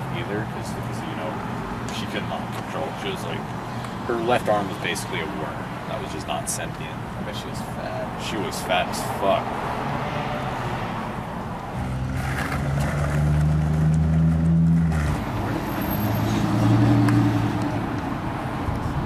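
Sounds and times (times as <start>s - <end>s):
engine humming: 11.1s - 19.0s.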